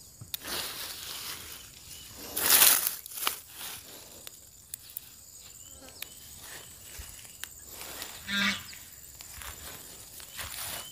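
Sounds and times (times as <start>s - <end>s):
rustling of vines: 0.3s - 10.9s
light footsteps: 9.1s - 10.9s.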